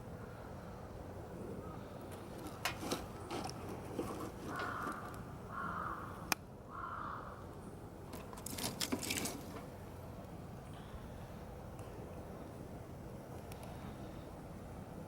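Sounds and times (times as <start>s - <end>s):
crow cawing: 4.5s - 7.4s.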